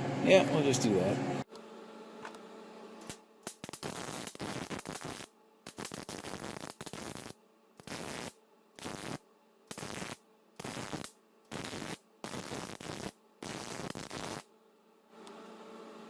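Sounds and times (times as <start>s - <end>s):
arc welding crackling: 3.0s - 14.5s.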